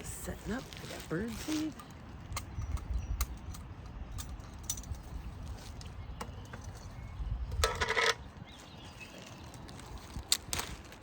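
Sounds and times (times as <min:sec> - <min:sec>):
bag rustling: 0:00.0 - 0:02.1.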